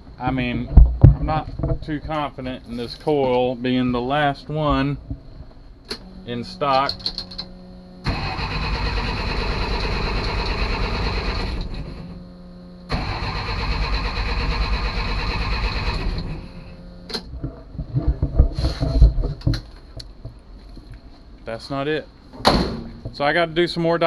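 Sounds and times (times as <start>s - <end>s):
engine starter cranking: 5.9s - 12.2s, 12.9s - 17.3s.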